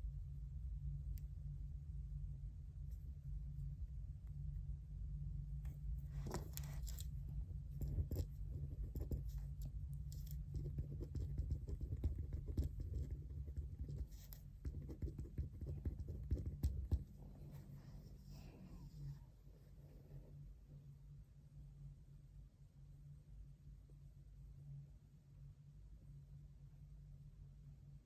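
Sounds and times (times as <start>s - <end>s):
steady low hum: 0.0s - 28.0s
pen writing on paper: 7.8s - 9.5s, 10.2s - 17.1s.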